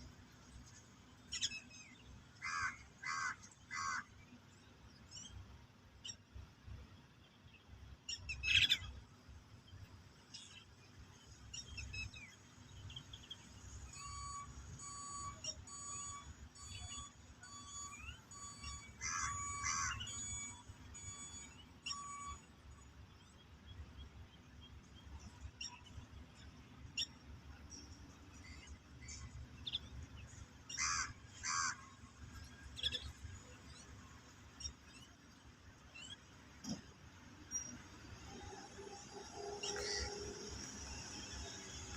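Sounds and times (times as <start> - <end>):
harsh caw-like bird calls: 2.4 - 4.2, 18.6 - 20.3, 30.7 - 32.1.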